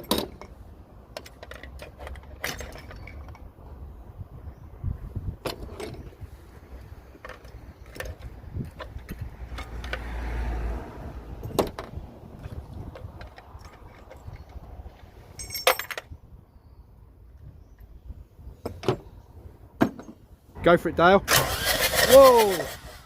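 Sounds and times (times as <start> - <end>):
tools clicking and knocking: 0.0 - 3.5, 11.4 - 16.1
short metallic jangle: 15.3 - 16.0.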